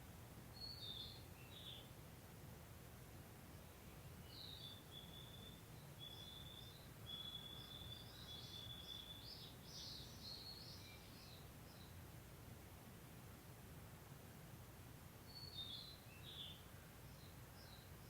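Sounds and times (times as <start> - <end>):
songbird singing: 0.5 - 2.0, 3.6 - 12.1, 15.2 - 18.0.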